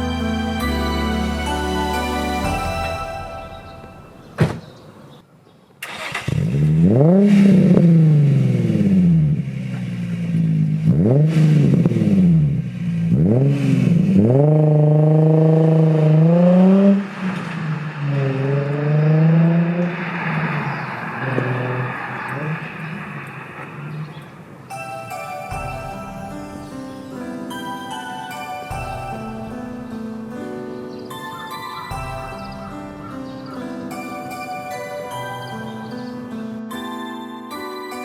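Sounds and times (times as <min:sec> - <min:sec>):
loud car engine revving: 0:05.9 - 0:24.6.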